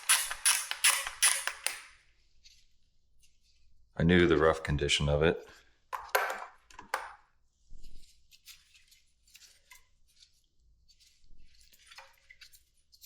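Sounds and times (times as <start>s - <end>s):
hand tools clicking and scraping: 0.0s - 1.9s.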